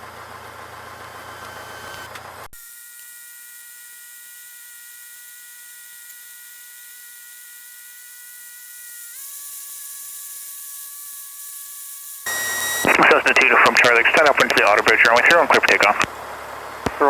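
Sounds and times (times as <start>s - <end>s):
high steady tones: 12.3s - 16.0s
electrical whine: 12.3s - 16.2s.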